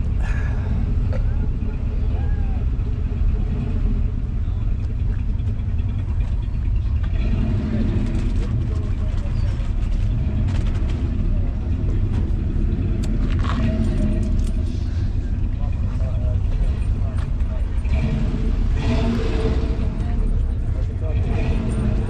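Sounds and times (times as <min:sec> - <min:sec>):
car engines rumbling: 0:00.0 - 0:22.0
faint voices: 0:00.0 - 0:22.0.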